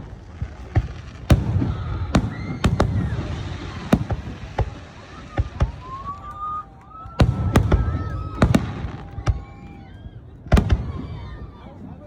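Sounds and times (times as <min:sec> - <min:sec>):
fireworks bangs: 0:00.0 - 0:12.0
low rumble of explosions: 0:00.0 - 0:12.0.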